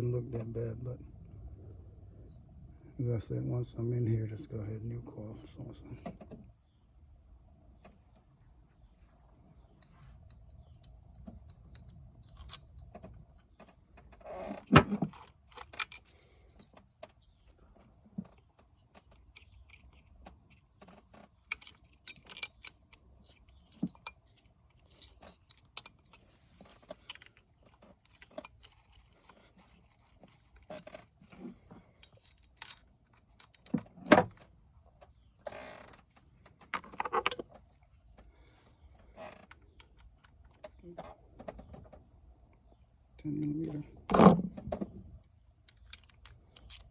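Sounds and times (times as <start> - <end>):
tools clinking on engine parts: 21.5 - 30.6, 45.7 - 46.9.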